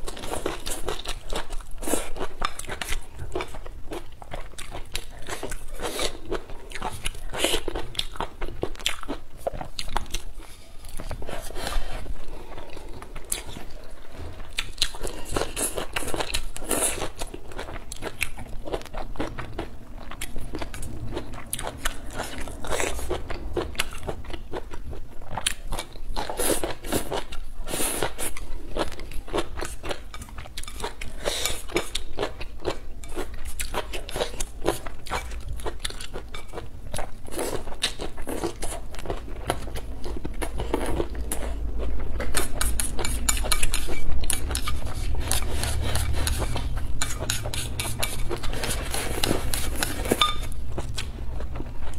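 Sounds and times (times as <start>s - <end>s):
person crunching and chewing: 0.0s - 51.9s.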